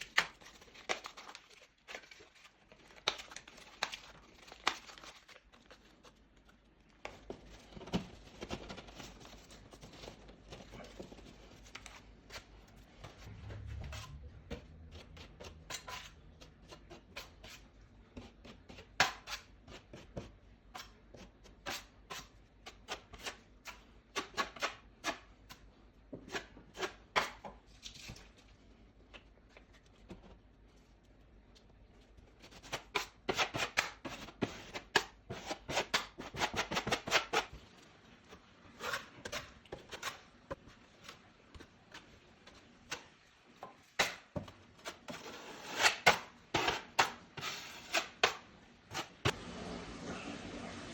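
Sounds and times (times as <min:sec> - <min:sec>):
low hum: 0:13.2 - 0:15.6.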